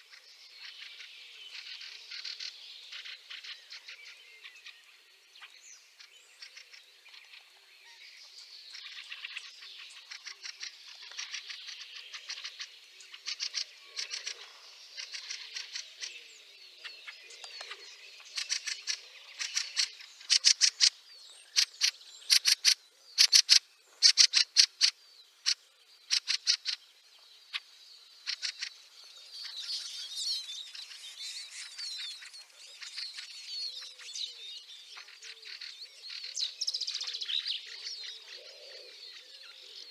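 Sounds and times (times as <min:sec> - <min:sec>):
birds chacking calls: 0:17.3 - 0:26.8
squeaky bird chattering: 0:21.6 - 0:24.9.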